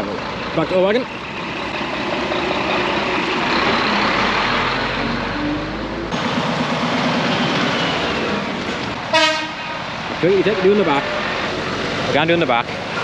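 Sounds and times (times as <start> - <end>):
diesel lorry engines idling: 0.0 - 13.0.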